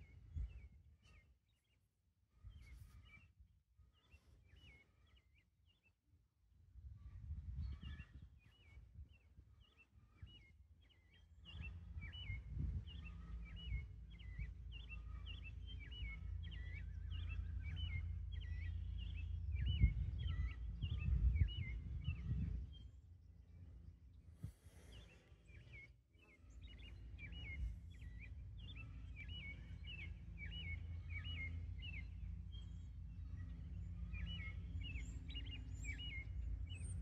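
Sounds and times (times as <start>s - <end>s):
wind rumble on microphone: 0.0s - 1.3s, 2.3s - 5.2s, 6.1s - 37.0s
songbird chirping: 7.8s - 37.0s.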